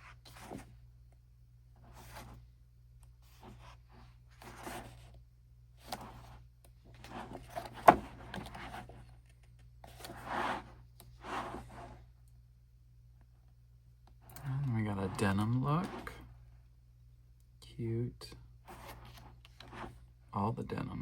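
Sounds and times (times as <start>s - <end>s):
photobook pages turning: 1.8s - 2.4s, 3.3s - 5.1s, 5.8s - 11.9s, 14.4s - 16.2s, 18.7s - 20.0s.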